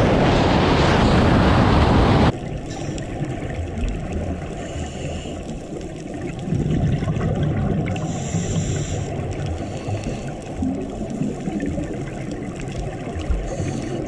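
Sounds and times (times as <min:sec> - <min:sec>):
muffled underwater rush: 0:00.0 - 0:14.0.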